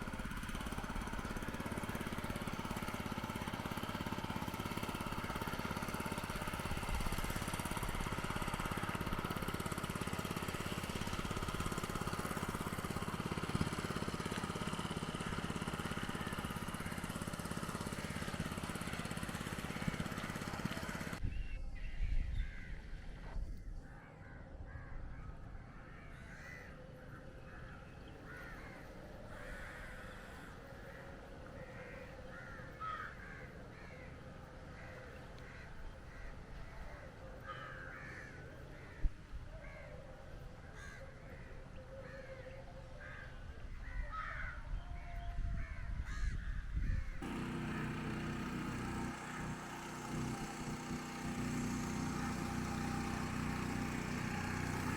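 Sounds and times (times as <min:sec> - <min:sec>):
steady engine hum: 0:00.0 - 0:21.3, 0:22.0 - 0:44.5, 0:46.1 - 0:54.9
crows cawing: 0:24.0 - 0:40.0, 0:40.7 - 0:44.6, 0:45.6 - 0:48.0.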